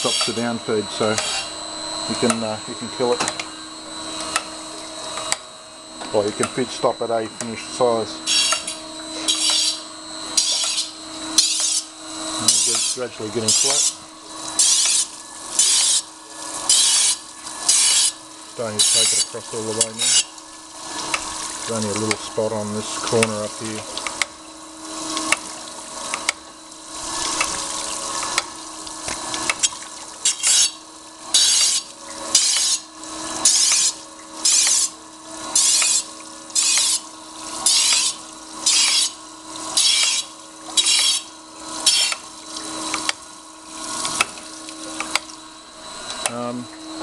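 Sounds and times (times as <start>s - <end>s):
grinding wheel hissing on metal: 0.0s - 5.4s, 6.1s - 24.3s, 29.4s - 43.2s
steady machine hum: 0.0s - 47.0s.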